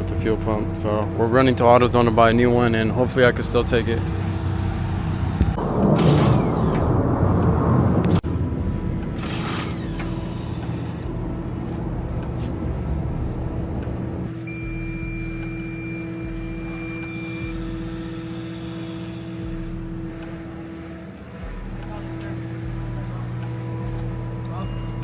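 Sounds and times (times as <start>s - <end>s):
car engine humming: 0.0s - 25.0s
high electronic beep: 14.4s - 18.5s.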